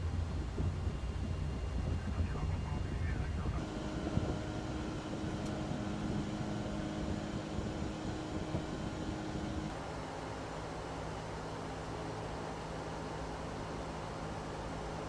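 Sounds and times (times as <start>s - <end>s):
jet engines droning: 0.0s - 10.6s.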